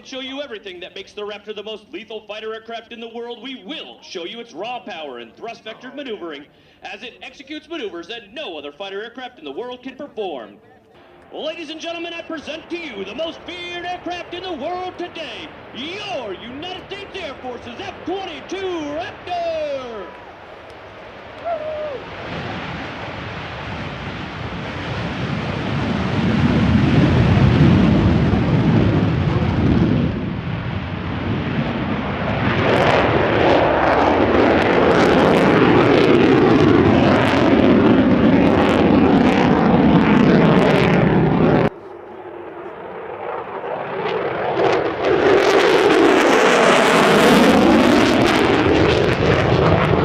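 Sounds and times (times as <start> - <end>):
jet engines roaring: 10.9 - 50.0
afterburner crackle: 11.0 - 50.0.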